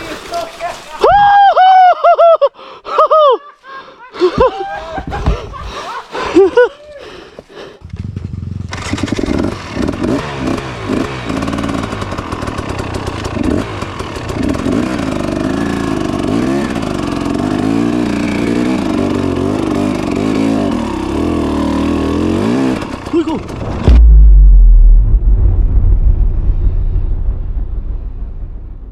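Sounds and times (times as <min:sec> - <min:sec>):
motorcycle engine revving: 0:07.8 - 0:24.2
steady rushing noise: 0:23.5 - 0:28.9.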